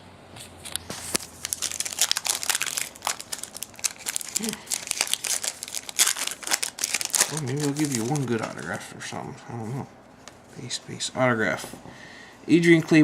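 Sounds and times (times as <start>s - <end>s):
foil wrapper crinkling: 0.6s - 8.9s.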